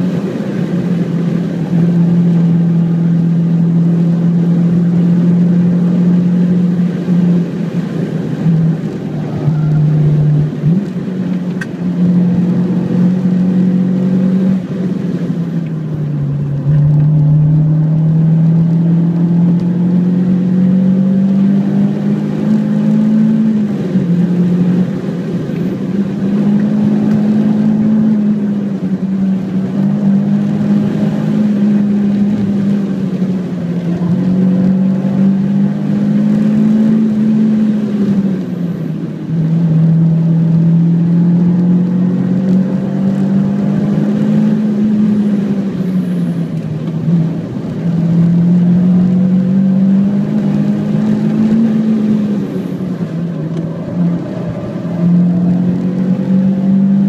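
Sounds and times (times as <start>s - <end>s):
car engine revving: 0.0s - 57.0s
road and tyre noise: 0.0s - 57.0s.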